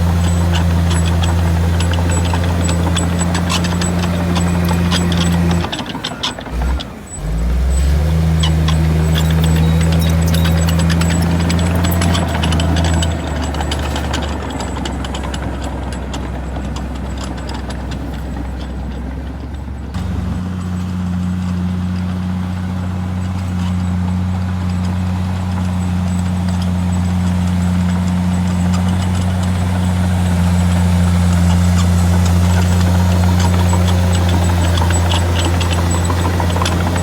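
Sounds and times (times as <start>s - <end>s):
heavy diesel machinery running: 0.0s - 37.0s
clicks and rattles: 0.1s - 6.9s, 8.4s - 19.6s, 26.2s - 37.0s.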